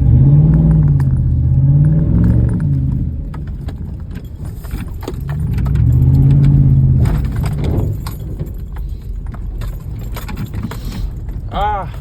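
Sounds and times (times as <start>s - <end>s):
truck engine revving: 0.0s - 3.4s, 5.3s - 8.0s
knocks and rattles: 0.0s - 12.0s.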